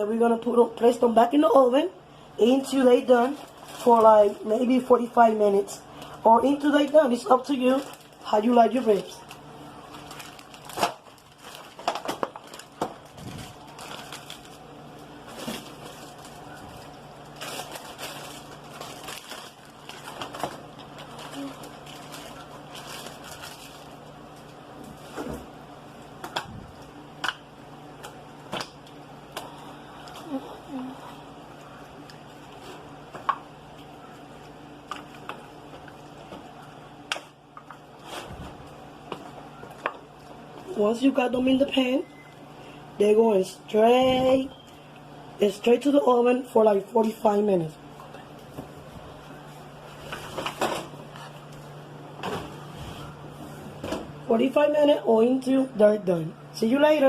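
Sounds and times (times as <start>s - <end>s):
steady low hum: 0.0s - 57.0s
crinkling and rustling: 2.9s - 4.6s, 6.4s - 25.6s, 31.5s - 40.7s, 48.0s - 54.1s.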